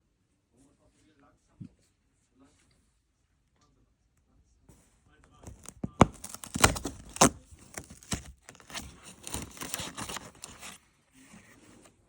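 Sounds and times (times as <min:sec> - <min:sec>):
cardboard snapping: 0:05.4 - 0:10.8
packaging rustling and ripping: 0:05.4 - 0:10.8.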